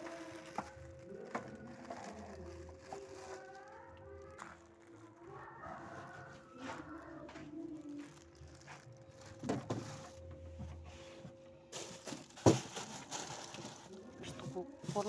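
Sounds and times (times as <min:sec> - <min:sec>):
handling knocks and clatters: 0:09.1 - 0:15.0.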